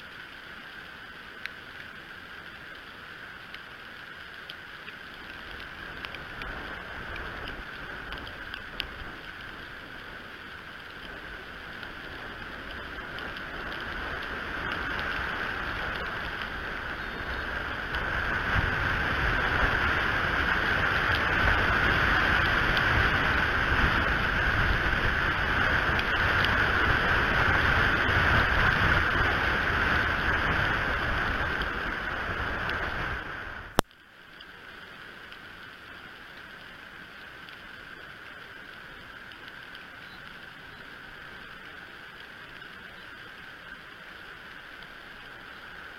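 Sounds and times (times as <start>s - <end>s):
strong wind buffeting microphone: 11.2s - 33.8s.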